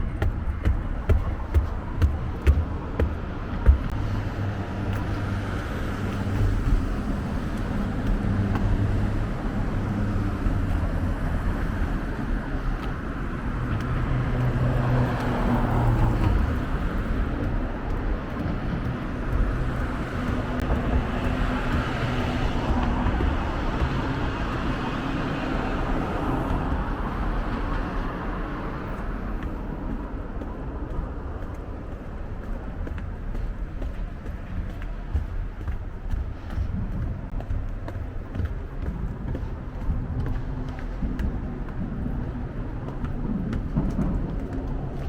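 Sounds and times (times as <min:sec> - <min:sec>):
car engines running: 0:00.0 - 0:45.0
vehicles passing: 0:00.0 - 0:45.0.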